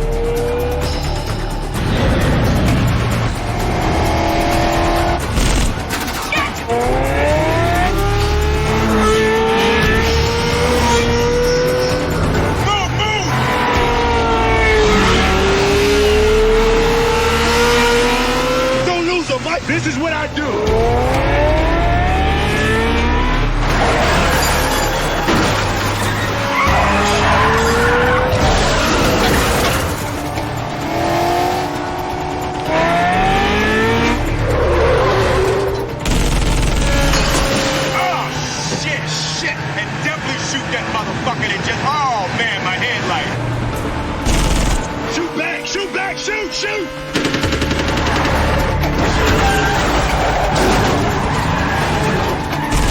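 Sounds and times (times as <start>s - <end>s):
film score with low beat: 0.0s - 19.0s
car engines revving: 0.0s - 52.9s
film score: 0.0s - 52.9s
tyres screeching: 2.0s - 42.2s, 42.8s - 52.9s
tyre squeals: 23.8s - 29.8s.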